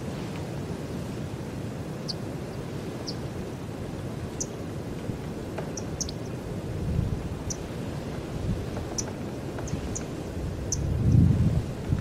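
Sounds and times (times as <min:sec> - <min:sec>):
small birds chirping: 0:02.0 - 0:03.3, 0:04.3 - 0:04.6, 0:05.6 - 0:06.5, 0:07.3 - 0:07.7, 0:08.7 - 0:11.3.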